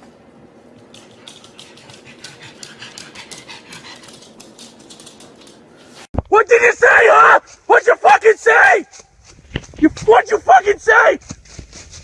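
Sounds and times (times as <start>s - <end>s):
dog panting: 1.0s - 5.4s.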